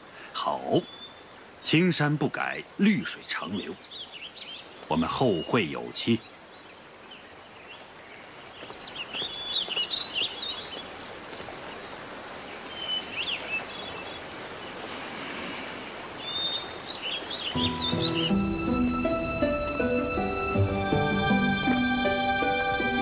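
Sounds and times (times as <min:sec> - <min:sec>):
small birds twittering: 0:00.0 - 0:23.0
steady outdoor hiss: 0:00.0 - 0:23.0.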